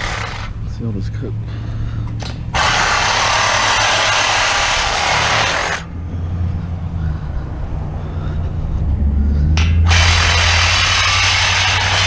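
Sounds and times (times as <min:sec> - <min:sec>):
power tool cutting: 0:00.0 - 0:00.5, 0:02.5 - 0:05.9, 0:09.6 - 0:12.0.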